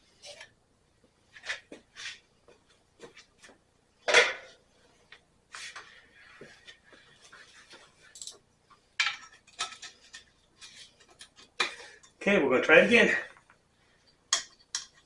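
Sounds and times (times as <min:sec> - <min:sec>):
tools handled on a workbench: 0:07.7 - 0:08.4, 0:09.0 - 0:12.2.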